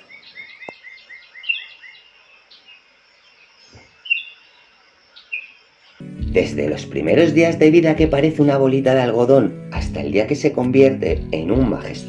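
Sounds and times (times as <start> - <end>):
small birds chirping: 0.0 - 6.4.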